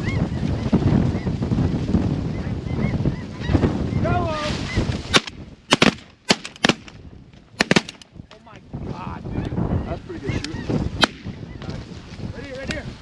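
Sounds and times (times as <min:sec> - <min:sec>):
wind rumble on microphone: 0:00.0 - 0:13.0
shotgun blasts: 0:05.1 - 0:06.9, 0:07.6 - 0:08.0, 0:11.0 - 0:11.3.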